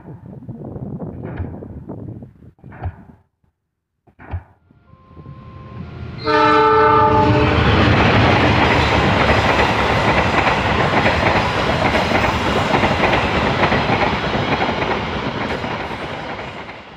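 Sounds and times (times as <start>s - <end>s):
train horn: 4.7s - 7.9s
train passing close by: 4.7s - 16.9s.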